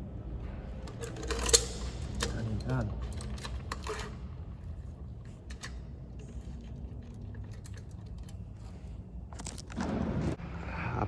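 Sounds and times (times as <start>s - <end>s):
low steady hum: 0.0s - 11.0s
hands clicking and knocking parts: 0.8s - 4.4s.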